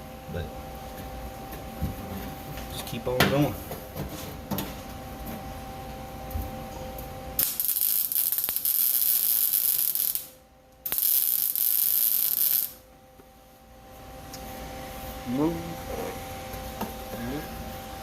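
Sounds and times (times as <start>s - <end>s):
welding arc crackling: 7.4s - 12.8s.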